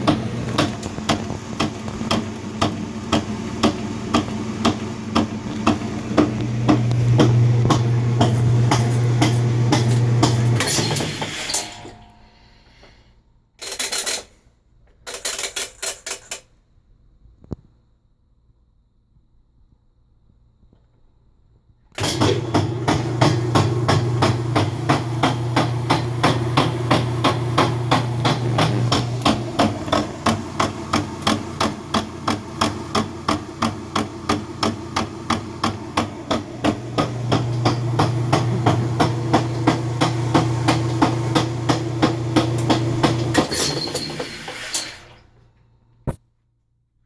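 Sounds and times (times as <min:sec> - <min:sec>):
motor hum: 0:00.0 - 0:11.0, 0:22.0 - 0:43.4
washer knocking while spinning: 0:00.0 - 0:11.4, 0:22.0 - 0:44.5.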